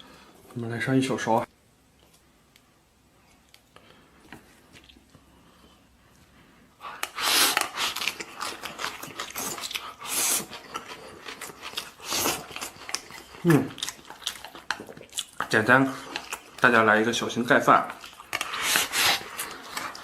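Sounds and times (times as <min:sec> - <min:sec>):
wet chewing and smacking: 0:03.3 - 0:05.7, 0:06.8 - 0:20.0.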